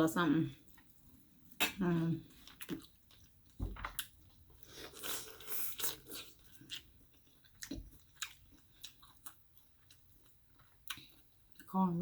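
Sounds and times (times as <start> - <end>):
person chewing crunchy food: 2.3 - 11.7.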